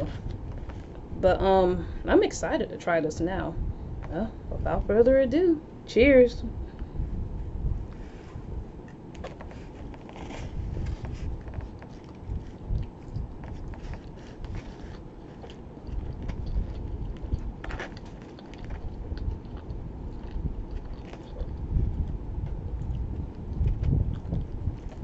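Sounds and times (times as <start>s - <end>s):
person chewing pizza: 7.9s - 25.0s.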